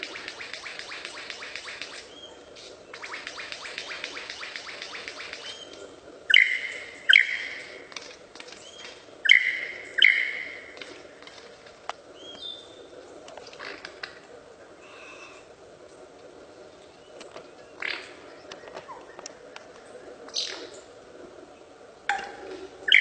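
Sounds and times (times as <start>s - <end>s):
bird rattle call: 0.0s - 11.0s
harsh bird calls: 0.0s - 11.1s, 22.2s - 23.0s.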